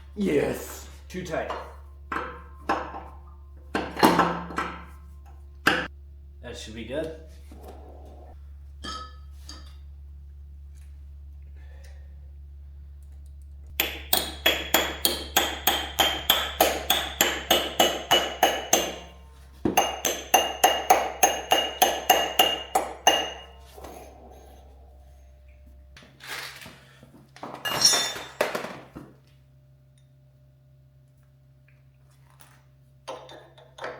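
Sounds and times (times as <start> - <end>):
rough metal clanks: 1.1 - 5.9, 27.7 - 28.6
hammer striking metal: 13.7 - 24.3, 27.7 - 28.5.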